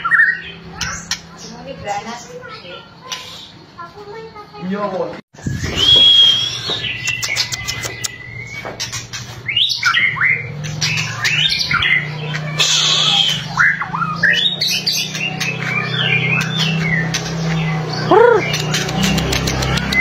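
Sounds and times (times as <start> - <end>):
songbird singing varied song: 5.4 - 8.7.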